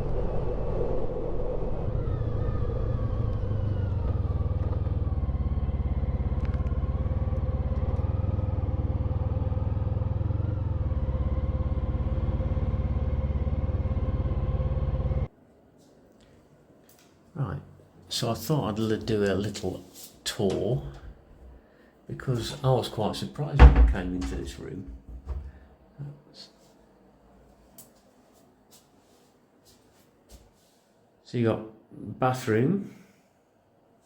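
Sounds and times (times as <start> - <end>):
wind and road noise: 0.0 - 15.3
motorcycle engine running: 2.0 - 15.3.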